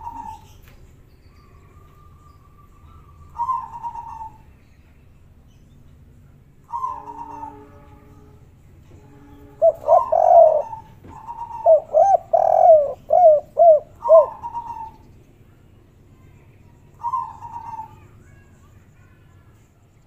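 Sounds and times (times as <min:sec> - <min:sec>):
dove cooing: 0:00.0 - 0:00.6, 0:03.3 - 0:04.4, 0:06.7 - 0:07.8, 0:09.6 - 0:15.0, 0:17.0 - 0:18.1.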